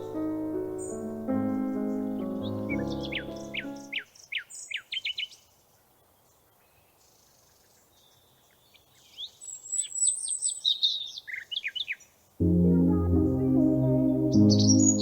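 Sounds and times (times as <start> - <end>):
birds chirping: 0.0 - 5.5, 12.7 - 15.0.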